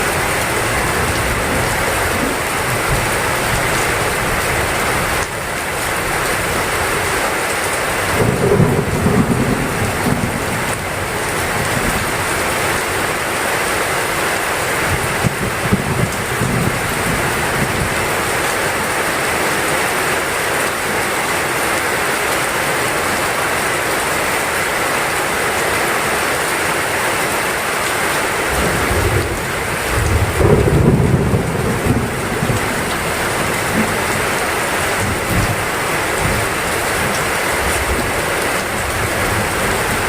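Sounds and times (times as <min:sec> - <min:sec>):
heavy rain: 0:00.0 - 0:40.0
thunder rumbling: 0:08.1 - 0:12.5, 0:14.9 - 0:18.2, 0:28.5 - 0:40.0.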